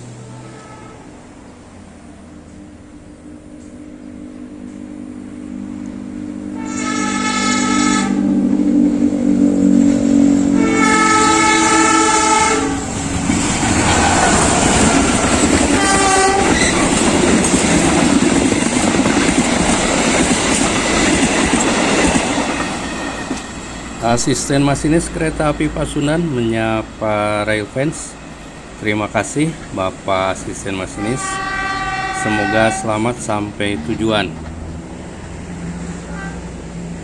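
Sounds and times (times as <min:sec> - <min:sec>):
train horn blasts: 0:00.0 - 0:01.3, 0:06.3 - 0:16.8, 0:25.1 - 0:26.7, 0:30.8 - 0:33.4, 0:36.0 - 0:36.6
locomotive engine drone: 0:00.0 - 0:37.0.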